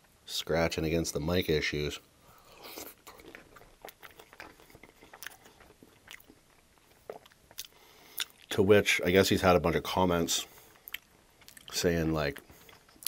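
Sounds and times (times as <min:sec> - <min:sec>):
person chewing food: 0:02.3 - 0:08.5, 0:10.5 - 0:13.0
wet mouth clicks: 0:02.6 - 0:06.4, 0:07.0 - 0:08.5.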